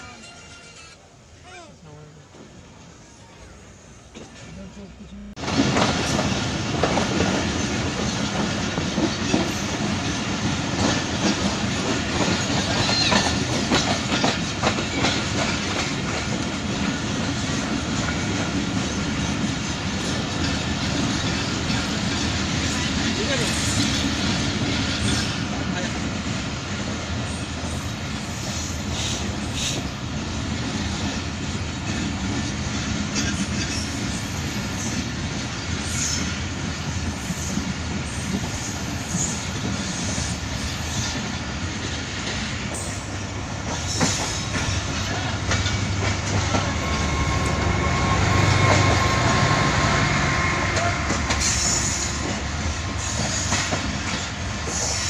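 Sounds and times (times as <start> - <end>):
train wheels rumbling on rails: 2.2 - 55.0
wheels clacking over rail joints: 5.4 - 27.9, 29.0 - 55.0
high wheel squeal: 46.6 - 52.3.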